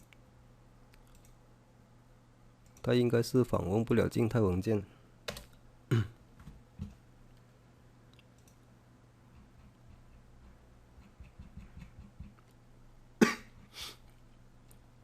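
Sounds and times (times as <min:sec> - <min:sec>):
keyboard typing clicks: 0:01.0 - 0:01.4, 0:05.3 - 0:05.6, 0:08.2 - 0:08.6.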